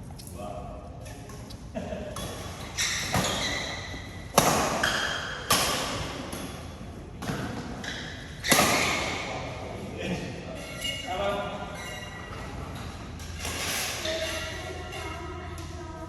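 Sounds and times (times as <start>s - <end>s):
rackets smacking shuttlecock: 2.2s - 7.6s, 8.4s - 9.2s.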